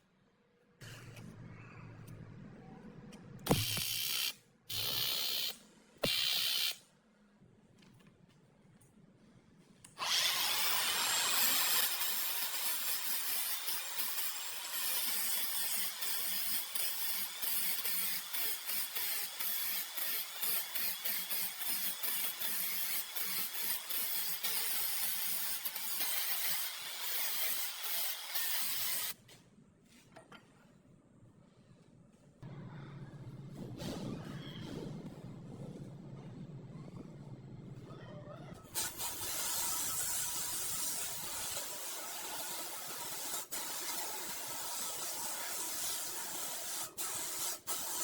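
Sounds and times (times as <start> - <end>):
hissing scraping tool: 10.0 - 29.2, 38.8 - 48.0.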